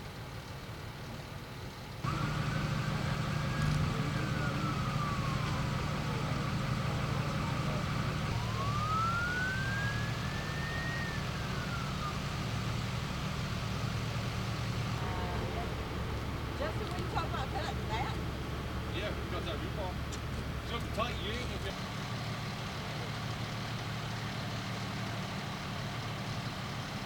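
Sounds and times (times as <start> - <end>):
low engine hum: 0.0 - 27.0
siren wailing: 2.1 - 14.2.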